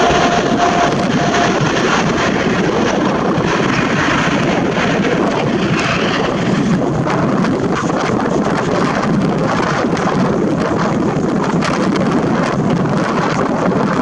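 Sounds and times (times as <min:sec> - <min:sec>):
faint whine: 0:00.0 - 0:09.5
jet engines roaring: 0:00.0 - 0:13.6.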